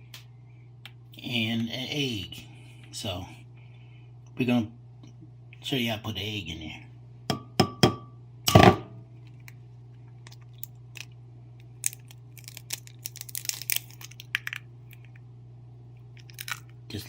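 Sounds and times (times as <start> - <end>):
steady low hum: 0.0 - 17.0
eggshell crackling: 9.2 - 15.3, 16.0 - 17.0.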